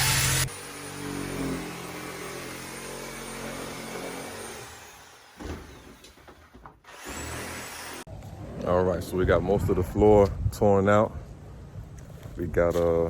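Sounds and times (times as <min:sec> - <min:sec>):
motor humming: 0:00.0 - 0:06.2.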